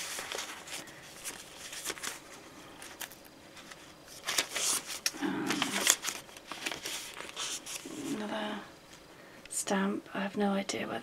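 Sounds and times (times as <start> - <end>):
paper pages rustling: 0.0 - 8.3.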